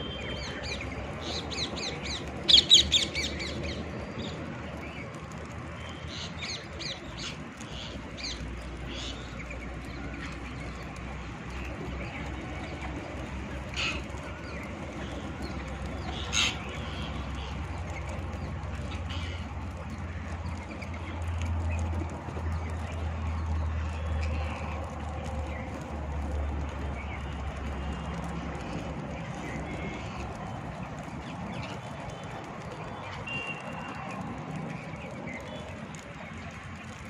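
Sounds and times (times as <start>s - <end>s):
parrots calling: 16.2s - 17.0s.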